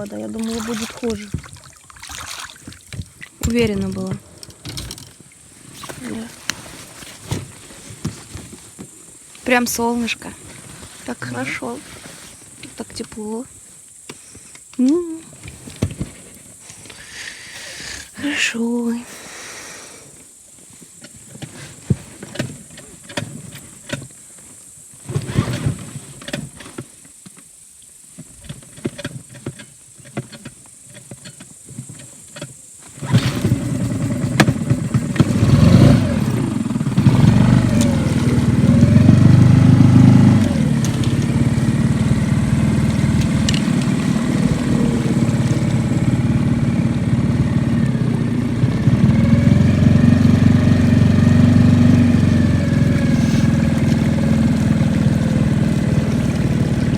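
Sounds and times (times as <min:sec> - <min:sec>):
outboard motor revving and running: 0:00.0 - 0:01.4, 0:05.8 - 0:06.3, 0:32.9 - 0:56.9.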